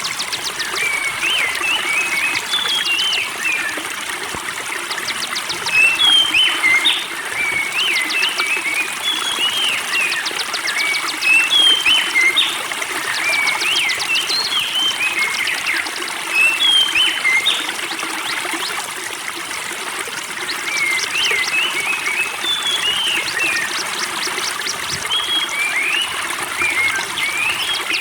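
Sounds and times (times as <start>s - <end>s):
songbirds calling: 0.0s - 28.0s
water trickling: 0.0s - 28.0s.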